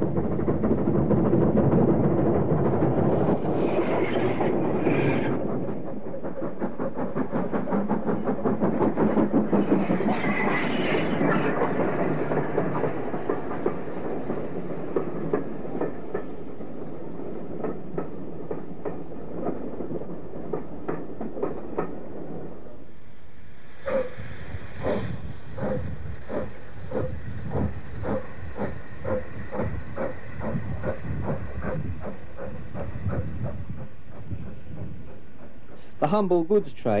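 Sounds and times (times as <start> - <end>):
wheels clacking over rail joints: 0.0 - 22.2
train rhythmic clatter: 0.0 - 37.0.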